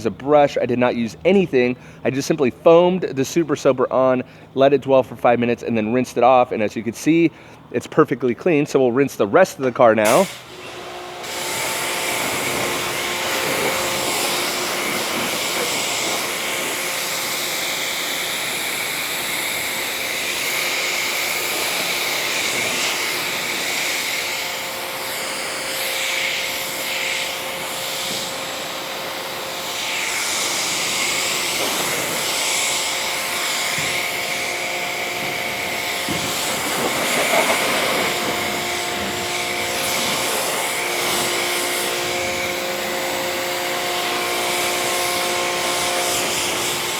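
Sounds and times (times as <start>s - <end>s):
pressure washer spray hissing: 10.0s - 46.9s
faint motor whine: 10.1s - 46.9s.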